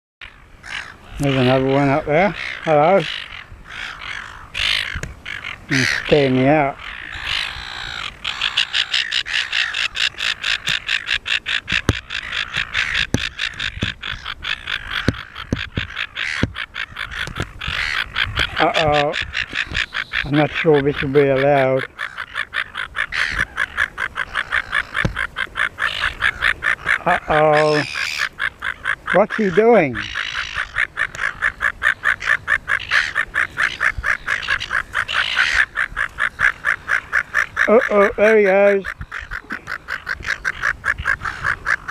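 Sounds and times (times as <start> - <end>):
gull calling harsh notes: 0.6 - 41.9
dull low knocks: 11.6 - 14.3, 14.9 - 16.6.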